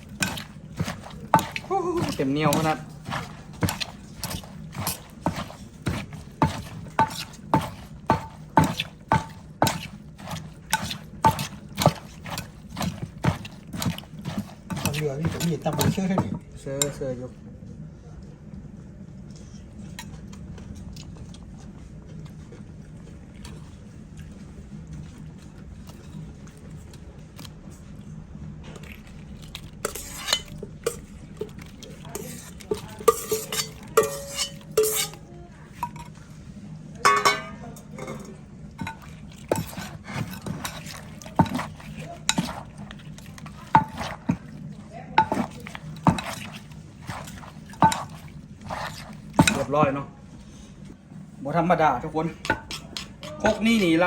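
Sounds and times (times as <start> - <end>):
pestle and spoon knocking mortar: 0.0 - 17.0, 29.8 - 35.2, 37.0 - 38.1, 38.8 - 50.0, 52.3 - 54.0
steady low hum: 0.0 - 54.0.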